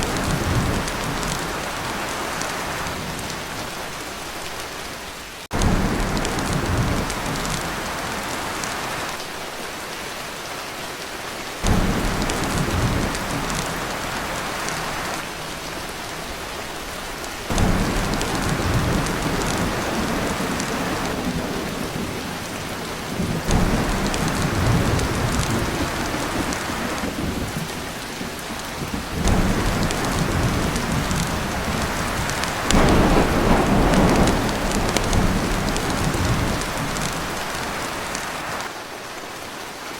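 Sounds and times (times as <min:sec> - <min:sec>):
heavy rain on a tin roof: 0:00.0 - 0:39.9
rolls of thunder: 0:17.5 - 0:27.8, 0:28.8 - 0:37.8.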